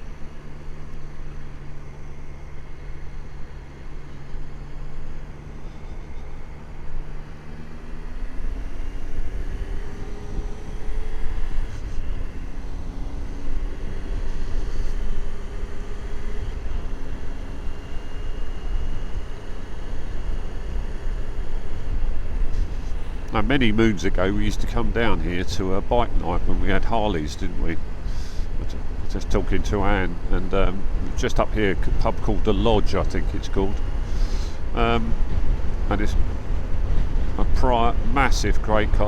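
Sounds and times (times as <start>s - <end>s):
motorcycle engine accelerating: 0.0s - 39.0s
wind rumble on microphone: 8.0s - 39.0s.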